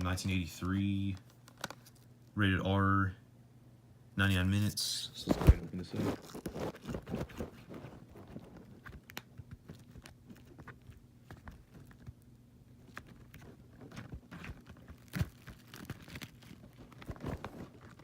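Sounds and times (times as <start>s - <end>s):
faint steady hum: 0.0s - 18.0s
plastic shrink-wrap crinkling: 5.3s - 18.0s.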